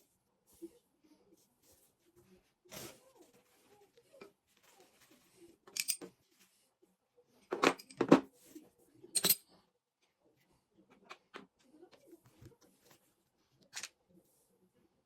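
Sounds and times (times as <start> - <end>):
small metal parts clicking: 5.8 - 6.0.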